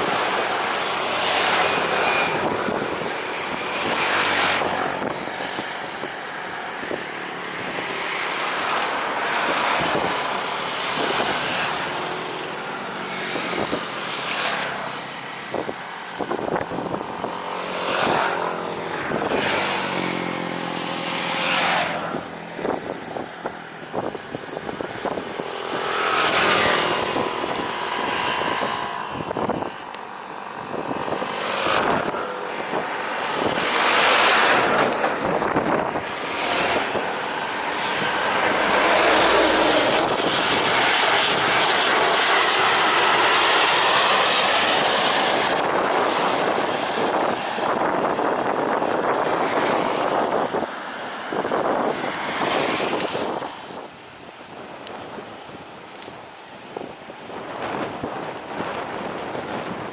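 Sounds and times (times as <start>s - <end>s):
airliner engines roaring: 0.0s - 59.9s
engine whining tone: 9.8s - 53.7s.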